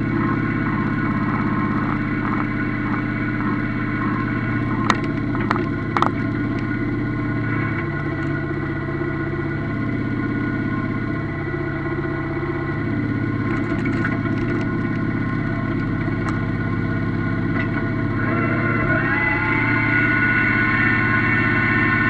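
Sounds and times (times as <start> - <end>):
diesel tractor engine running: 0.0 - 22.0.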